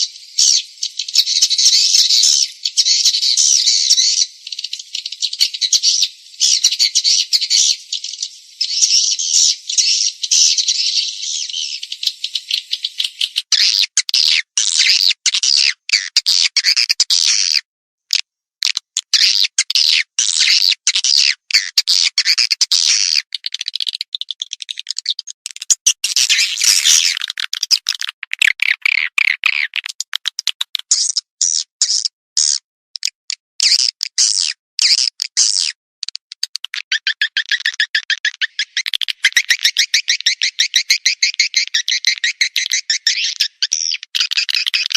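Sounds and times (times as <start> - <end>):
swiftlet chirps and clicks: 27.4 - 31.2.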